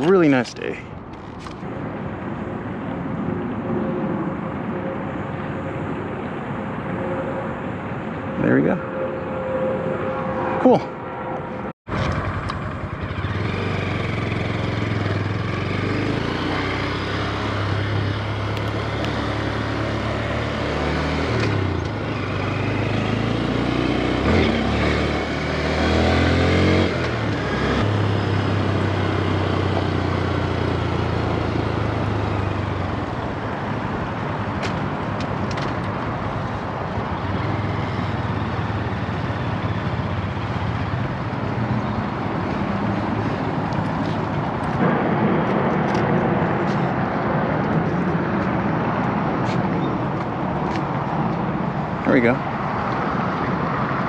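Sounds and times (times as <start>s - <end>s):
motorcycle engine revving: 11.9s - 32.9s
rushing wind noise: 41.1s - 54.0s.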